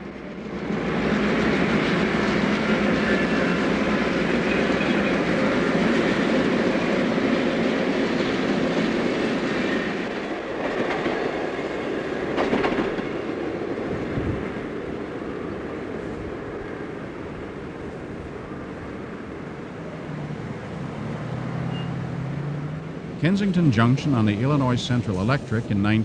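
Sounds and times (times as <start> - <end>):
train clattering over rails: 0.0 - 18.9.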